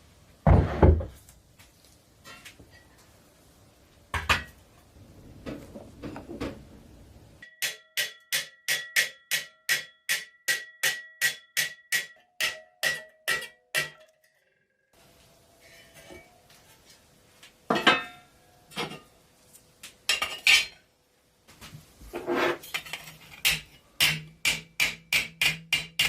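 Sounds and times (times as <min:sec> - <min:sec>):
hammer tapping on metal: 0:07.4 - 0:14.1.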